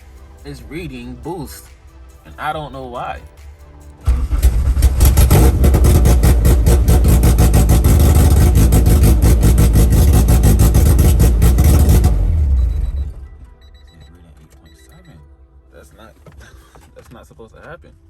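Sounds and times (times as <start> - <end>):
engine cranking on starter: 4.0 - 13.4.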